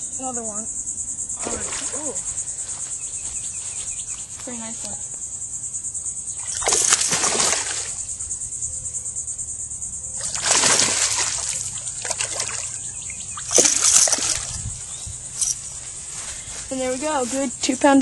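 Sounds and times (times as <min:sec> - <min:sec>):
fish splashing in water: 0:01.4 - 0:02.2, 0:06.4 - 0:08.2, 0:10.2 - 0:14.6.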